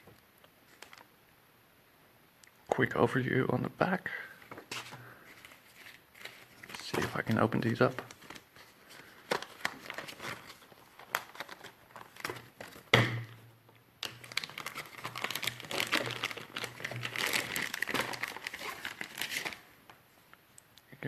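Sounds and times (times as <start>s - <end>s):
packaging crinkling: 4.5s - 13.0s, 14.0s - 20.0s.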